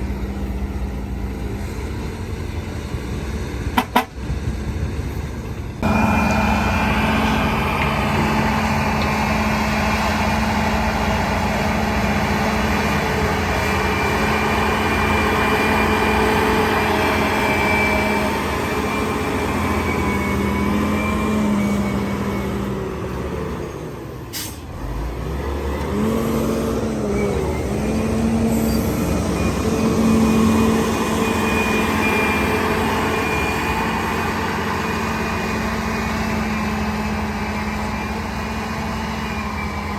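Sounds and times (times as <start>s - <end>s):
diesel machinery engine drone: 0.0s - 39.9s
high whine: 5.8s - 9.2s.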